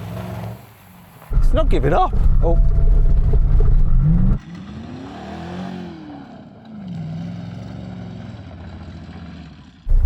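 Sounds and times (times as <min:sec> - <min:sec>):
car engine revving: 0:01.3 - 0:06.4.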